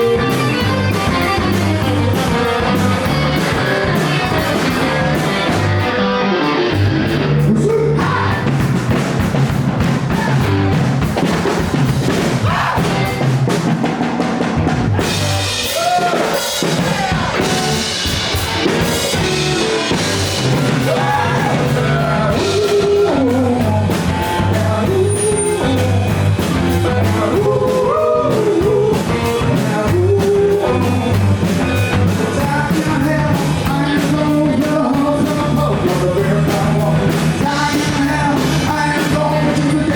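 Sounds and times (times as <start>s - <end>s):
live rock band playing: 0.0s - 39.9s
person singing: 6.8s - 8.6s, 19.1s - 39.9s.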